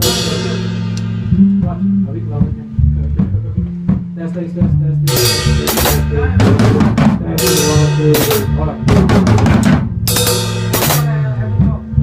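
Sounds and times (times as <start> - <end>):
cymbal crashes: 0.0 - 1.5, 10.1 - 11.2
live band playing: 0.0 - 2.6, 5.0 - 12.0.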